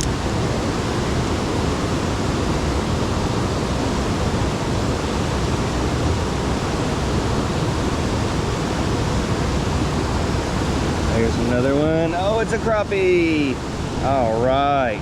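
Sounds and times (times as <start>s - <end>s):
water roaring through floodgates: 0.0s - 15.0s.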